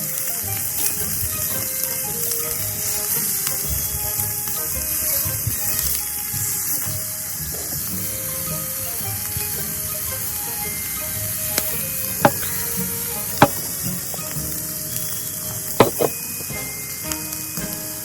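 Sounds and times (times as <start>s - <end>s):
sharp pops: 11.4s - 16.4s.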